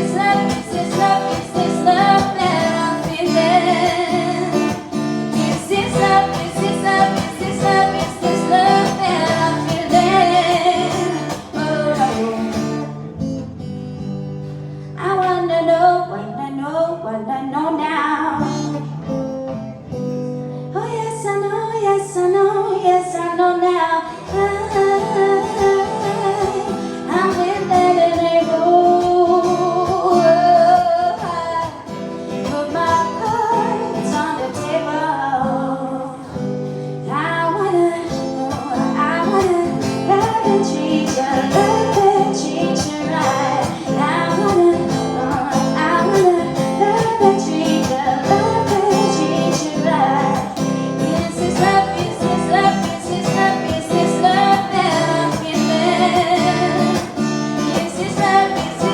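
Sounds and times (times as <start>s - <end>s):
woman singing: 0.0s - 13.0s, 15.0s - 18.9s, 20.7s - 58.9s
strummed acoustic guitar: 0.0s - 16.5s, 18.3s - 58.9s.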